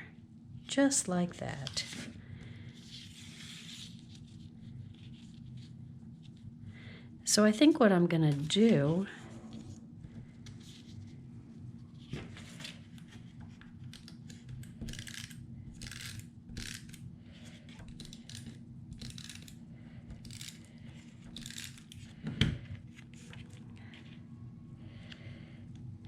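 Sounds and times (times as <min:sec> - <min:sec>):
paper rustling and scraping: 0:11.9 - 0:14.8, 0:20.9 - 0:24.2.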